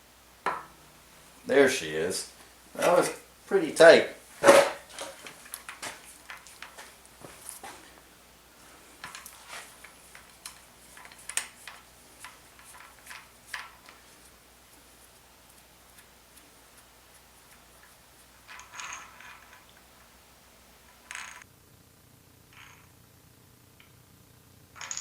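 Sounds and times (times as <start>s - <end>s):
short scraping: 4.4s - 6.1s
clinks of metal tools and parts: 9.0s - 14.0s, 18.5s - 19.8s.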